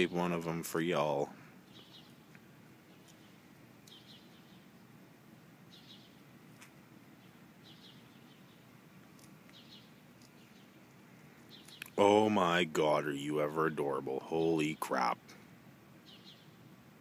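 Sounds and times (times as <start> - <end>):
high bird chirps: 1.7 - 2.2, 2.9 - 4.7, 5.7 - 6.2, 7.2 - 8.7, 11.4 - 12.0.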